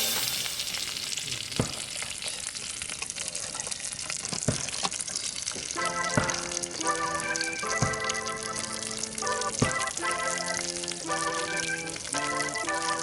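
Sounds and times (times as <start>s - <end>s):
wood fire crackling: 0.0s - 13.0s
background music: 5.8s - 13.0s.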